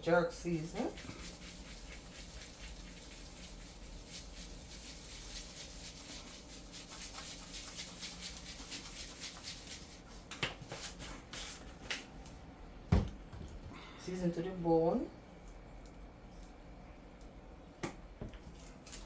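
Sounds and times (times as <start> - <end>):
hands rubbing meat: 0.4 - 12.1.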